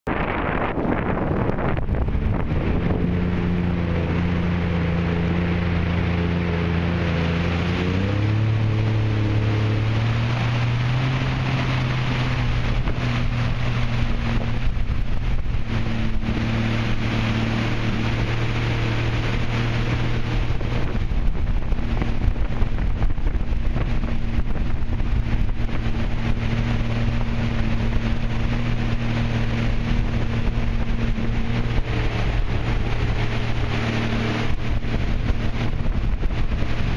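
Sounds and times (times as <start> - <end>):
wind noise on microphone: 0.0 - 36.9
jet ski engine drone: 0.1 - 36.9
water rushing: 0.1 - 36.9.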